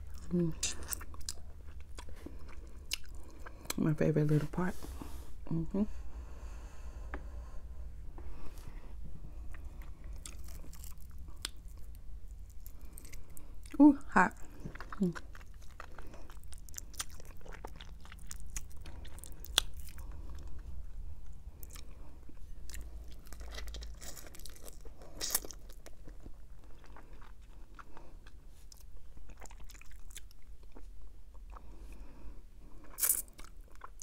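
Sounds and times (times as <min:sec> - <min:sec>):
chewing crispy chicken: 0:00.0 - 0:03.8, 0:09.4 - 0:34.0.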